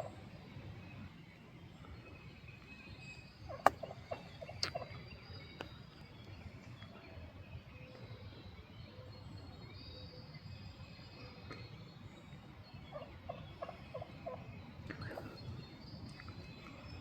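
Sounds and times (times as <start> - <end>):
turkey gobbling: 3.5 - 5.0, 12.9 - 14.5.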